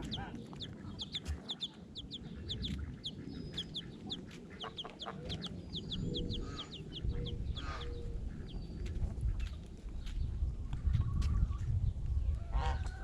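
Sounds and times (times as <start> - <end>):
hen clucking: 0.0 - 9.6
baby chicks peeping: 0.0 - 11.8.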